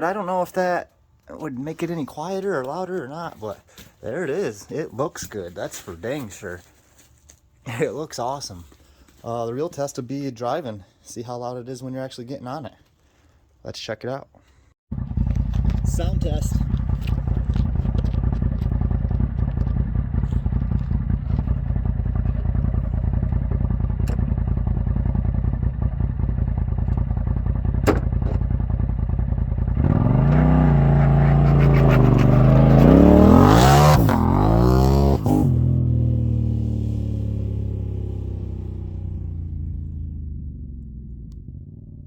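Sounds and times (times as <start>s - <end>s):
car engine idling and revving: 14.9s - 42.0s.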